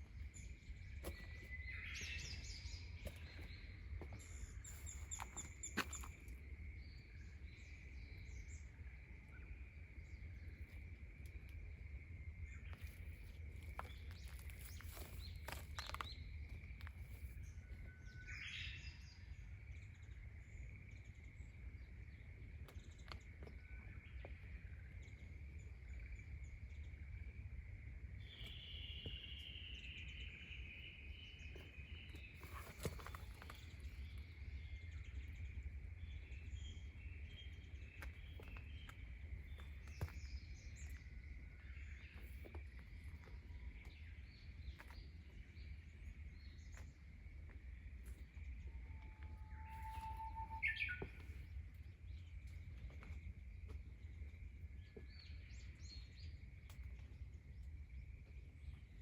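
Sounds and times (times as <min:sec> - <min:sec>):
insect chorus: 0:00.0 - 0:59.0
bird calls: 0:48.3 - 0:53.3.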